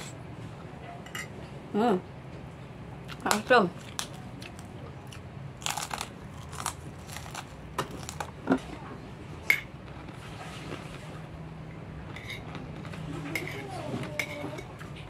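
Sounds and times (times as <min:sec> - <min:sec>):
cracker crunching: 0:03.1 - 0:08.5.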